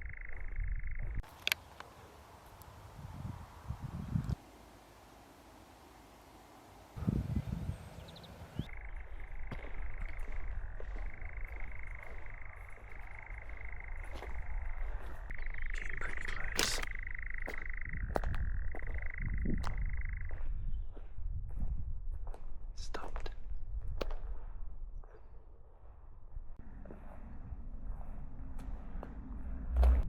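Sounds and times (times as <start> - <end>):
nightjar churring trill: 0.0 - 1.3, 8.6 - 20.4.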